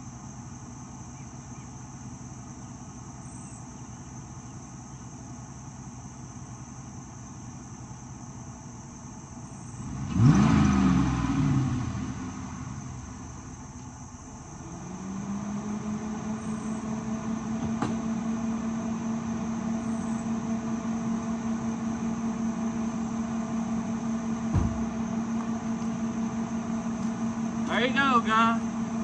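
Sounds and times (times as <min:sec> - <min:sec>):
car engine idling: 0:00.0 - 0:29.0
low thump: 0:24.5 - 0:25.0.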